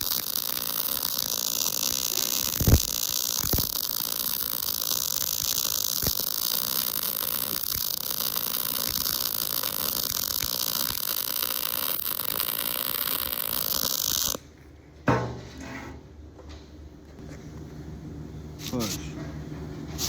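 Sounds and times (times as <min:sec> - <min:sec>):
welding arc hissing and popping: 0:00.0 - 0:14.4.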